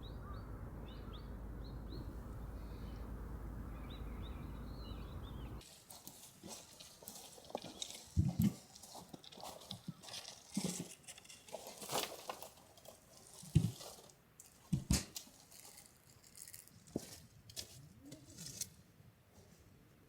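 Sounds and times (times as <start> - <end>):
rustling and scraping: 5.6 - 18.8.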